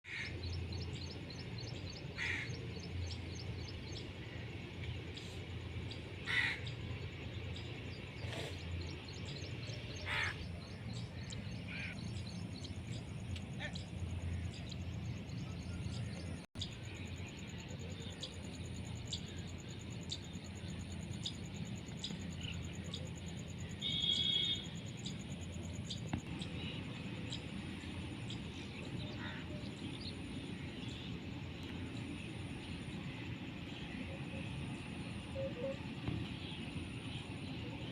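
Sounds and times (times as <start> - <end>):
birds calling: 0.1 - 16.7, 25.9 - 34.0
steady low hum: 0.1 - 37.9.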